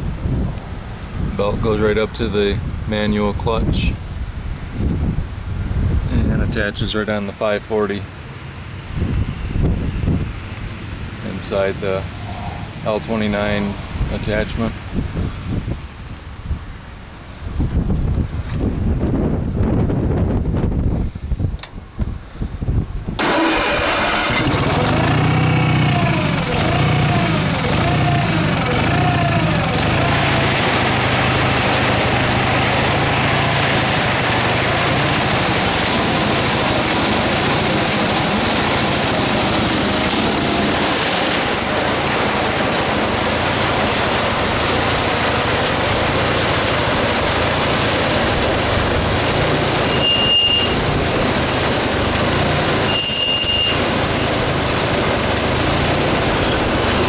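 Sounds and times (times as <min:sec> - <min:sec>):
tractor engine running: 0:23.2 - 0:57.0
short high squeaks: 0:49.8 - 0:50.8, 0:52.8 - 0:53.9.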